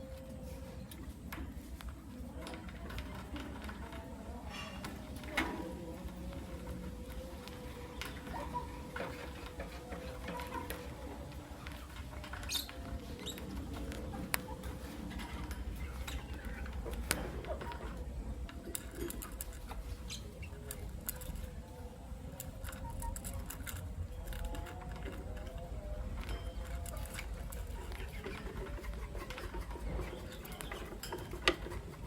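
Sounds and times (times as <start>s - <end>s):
birds clicking and scratching: 0.0s - 32.0s
bird chirp: 6.9s - 18.0s, 19.9s - 21.4s, 29.7s - 31.3s.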